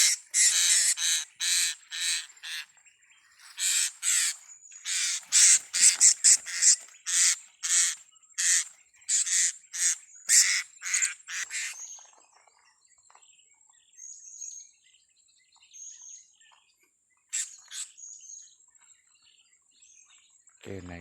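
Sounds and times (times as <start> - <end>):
parrots calling shrilly: 0.0 - 2.7, 3.5 - 11.8.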